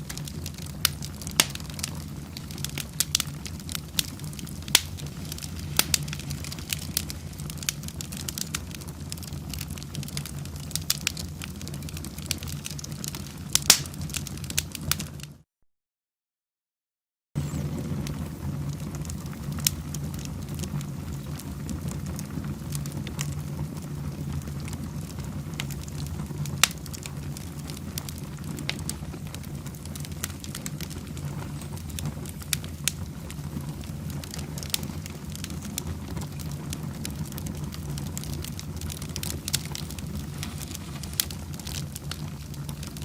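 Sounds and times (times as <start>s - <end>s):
logs crackling and popping: 0.0s - 15.4s, 17.4s - 43.0s
wood fire rumbling: 0.0s - 15.4s, 17.4s - 43.0s.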